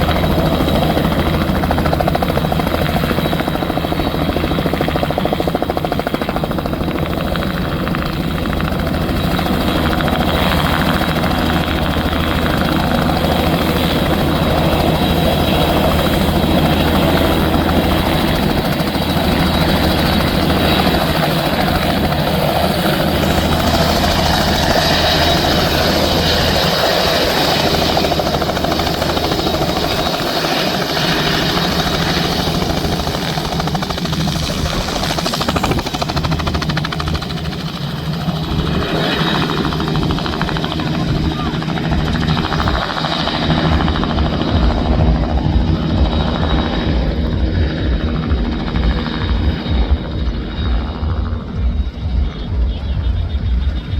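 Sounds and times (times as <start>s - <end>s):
helicopter engine and rotor: 0.0s - 53.9s.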